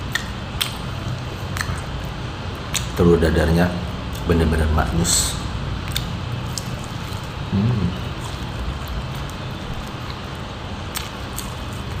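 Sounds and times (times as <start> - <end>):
low background hum: 0.0 - 12.0
soft chewing: 5.8 - 12.0.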